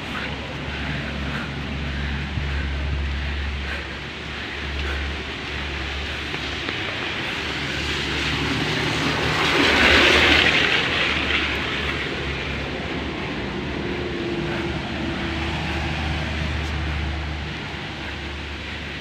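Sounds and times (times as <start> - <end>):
steady low hum: 0.0 - 19.0
vehicle passing by: 0.0 - 19.0.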